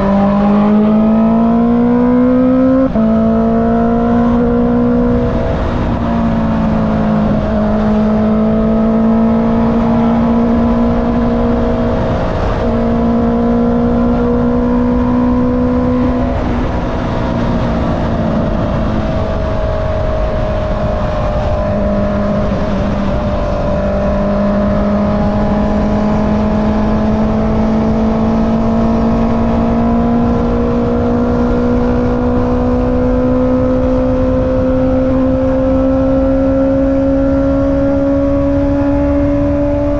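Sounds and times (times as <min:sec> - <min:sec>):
motorcycle engine revving: 0:00.0 - 0:39.9
wind rumble on microphone: 0:00.0 - 0:39.9.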